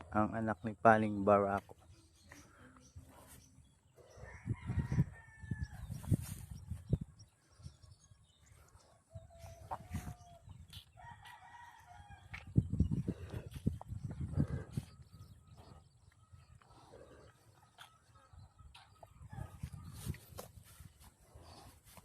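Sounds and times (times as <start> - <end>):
roosters crowing: 4.1 - 6.1, 9.1 - 12.5.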